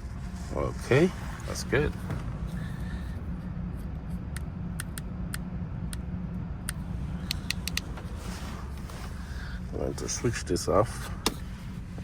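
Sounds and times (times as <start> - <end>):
car engine idling: 0.0 - 12.0
light clicks: 6.7 - 8.0.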